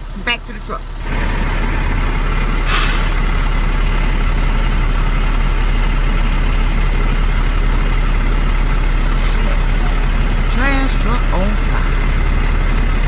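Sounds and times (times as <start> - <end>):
diesel truck engine idling: 0.0 - 13.0
short hiss: 2.6 - 3.3.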